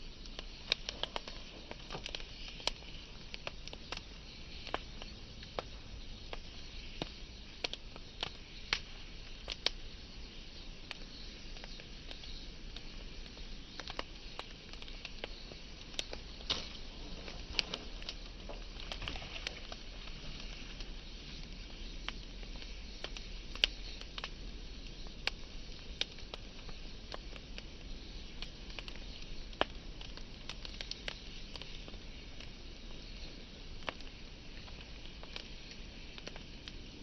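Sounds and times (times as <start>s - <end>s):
fire hiss: 0.0s - 37.0s
wood fire crackling and popping: 0.0s - 37.0s.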